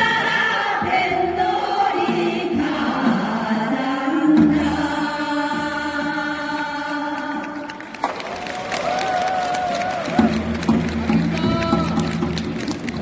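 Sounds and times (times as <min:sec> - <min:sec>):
group singing in unison: 0:00.0 - 0:08.0.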